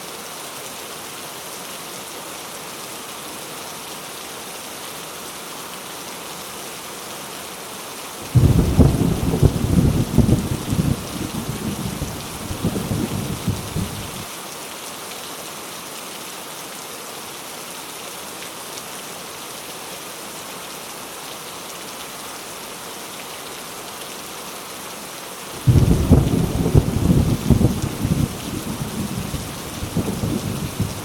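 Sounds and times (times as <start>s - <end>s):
heavy rain hissing: 2.2s - 16.6s, 17.8s - 31.0s
low rumbling thunder: 8.3s - 14.2s, 25.6s - 31.0s.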